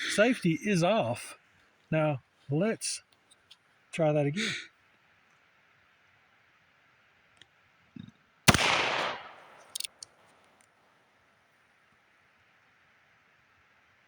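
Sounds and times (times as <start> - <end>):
revolver gunshot echoing: 8.5 - 9.8
light clicks: 9.0 - 10.7.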